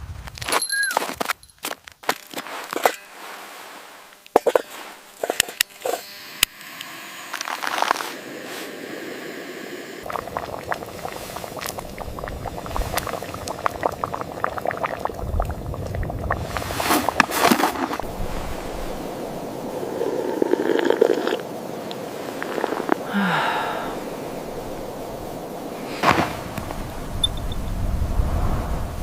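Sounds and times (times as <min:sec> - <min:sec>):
low rumble: 0:10.0 - 0:17.2, 0:18.0 - 0:20.4
rushing water: 0:10.0 - 0:29.0.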